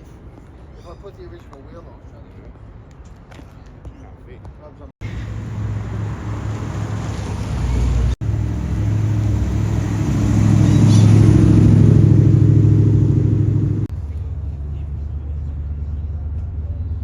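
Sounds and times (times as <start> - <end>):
car engine running: 5.0 - 13.9.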